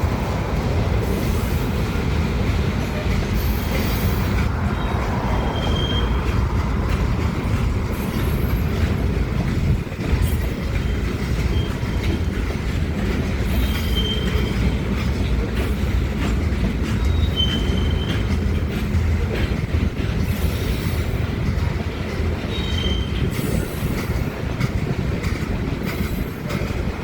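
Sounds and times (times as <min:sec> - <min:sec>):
train wheels rumbling on rails: 0:00.0 - 0:27.0
high wheel squeals: 0:03.4 - 0:06.4, 0:13.6 - 0:14.8, 0:16.9 - 0:18.3, 0:22.5 - 0:23.7.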